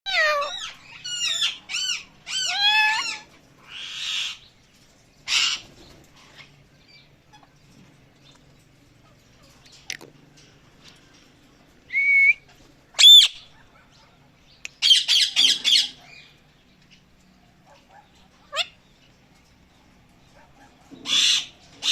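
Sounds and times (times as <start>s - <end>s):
parrot squawking: 0.1s - 4.4s, 13.0s - 13.9s, 14.8s - 16.1s, 17.9s - 18.8s, 21.0s - 21.9s
parrot whistling: 13.0s - 13.4s.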